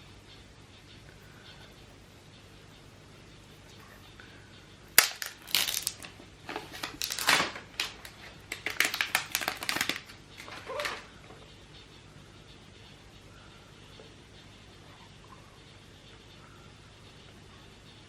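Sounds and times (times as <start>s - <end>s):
packaging crinkling and tearing: 5.0s - 11.1s.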